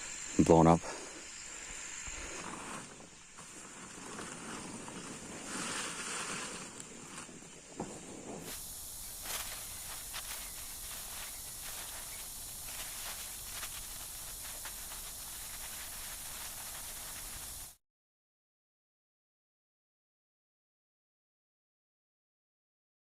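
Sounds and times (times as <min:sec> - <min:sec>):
gusting wind: 0:00.0 - 0:17.8
heavy rain hiss: 0:00.0 - 0:17.8
rain drops ticking: 0:08.6 - 0:17.7.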